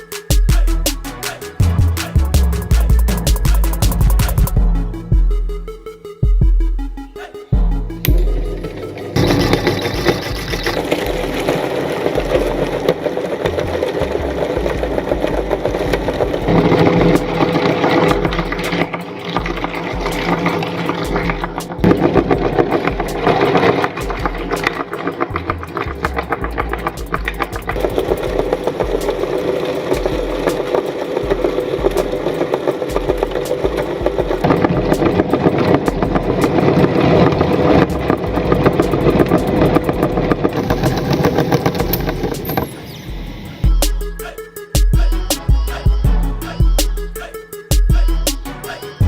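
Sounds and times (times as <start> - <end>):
dense crackling: 0.0 - 49.0
meat grinder motor hum: 9.2 - 23.9
meat grinder motor running: 9.2 - 24.5, 27.8 - 42.3.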